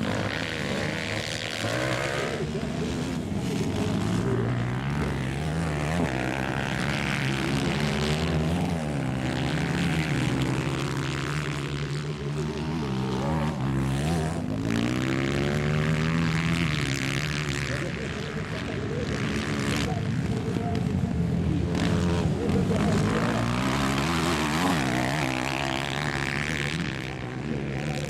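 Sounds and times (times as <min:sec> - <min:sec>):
motorcycle engines revving: 0:00.0 - 0:28.0.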